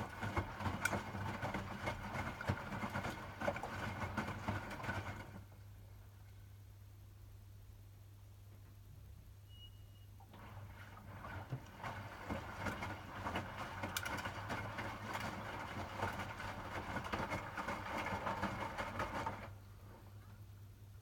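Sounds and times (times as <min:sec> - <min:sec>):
water sloshing in washing machine: 0:00.0 - 0:05.6, 0:10.2 - 0:19.6.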